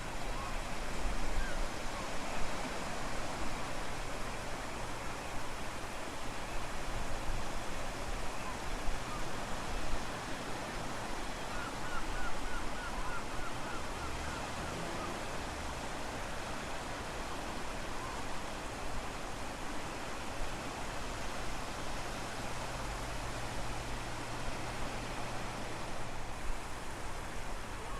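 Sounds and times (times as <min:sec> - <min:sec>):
ocean waves: 0:00.0 - 0:27.9.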